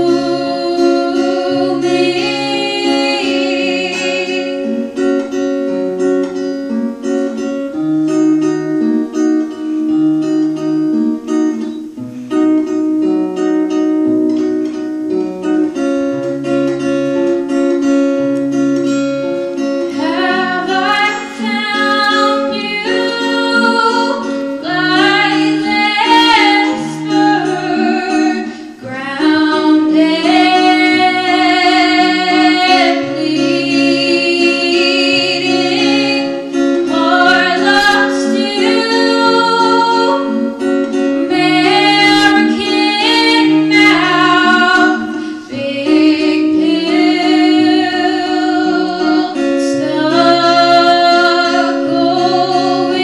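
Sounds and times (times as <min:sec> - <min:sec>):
young woman singing: 0:00.0 - 0:05.4, 0:19.8 - 0:53.0
acoustic guitar picking: 0:00.0 - 0:53.0.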